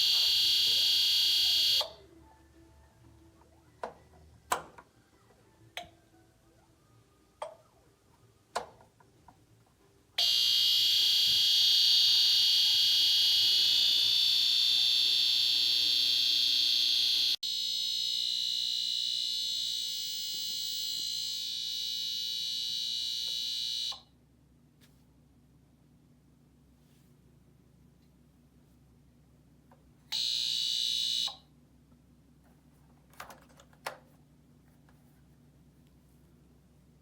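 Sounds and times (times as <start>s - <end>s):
heater high-pitched buzz: 0.0s - 1.9s, 10.2s - 23.9s.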